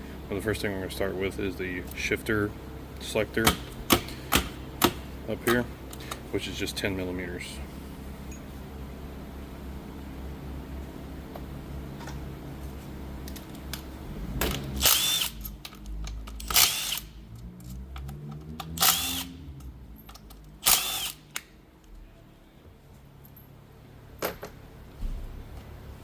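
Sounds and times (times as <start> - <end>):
power drill whine: 14.8 - 15.4, 16.5 - 17.0, 18.8 - 19.3, 20.6 - 21.2.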